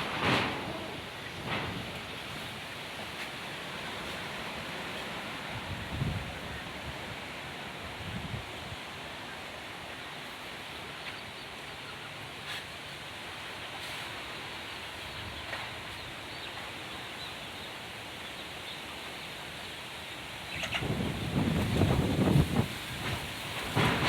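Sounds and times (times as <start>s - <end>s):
strong wind blowing: 5.5s - 8.8s, 20.7s - 24.0s.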